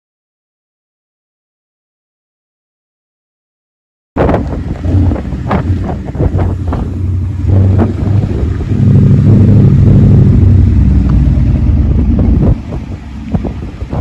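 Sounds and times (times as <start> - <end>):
car engine running: 4.2 - 14.0.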